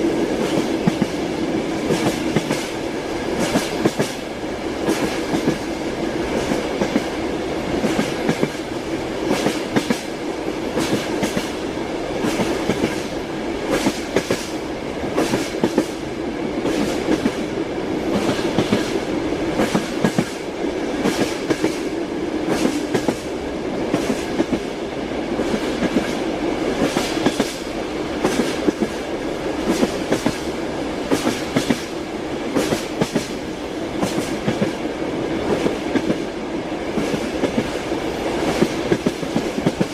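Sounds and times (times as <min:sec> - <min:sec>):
train wheels clattering: 0:01.8 - 0:04.2, 0:04.8 - 0:05.7, 0:06.3 - 0:10.1, 0:10.7 - 0:11.6, 0:12.2 - 0:16.0, 0:19.6 - 0:21.9, 0:22.5 - 0:23.3, 0:25.4 - 0:29.0, 0:29.6 - 0:30.5, 0:31.1 - 0:34.8, 0:36.9 - 0:39.9.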